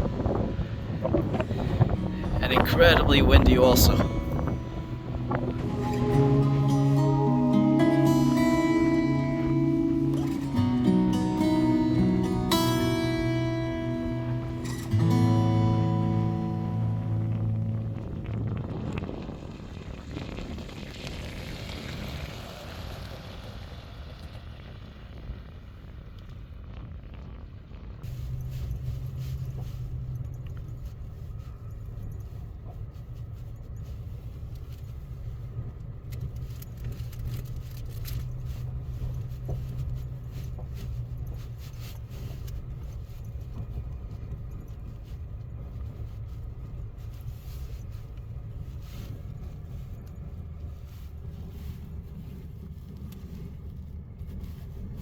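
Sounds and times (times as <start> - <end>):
truck engine and road noise: 0.0 - 55.0.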